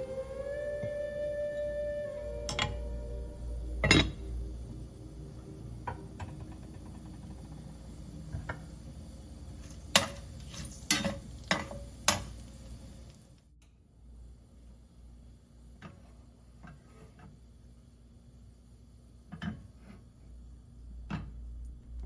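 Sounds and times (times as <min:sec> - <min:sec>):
low steady hum: 0:00.0 - 0:16.8, 0:20.1 - 0:22.0
utensils clinking on cookware: 0:03.8 - 0:04.2, 0:09.6 - 0:12.4.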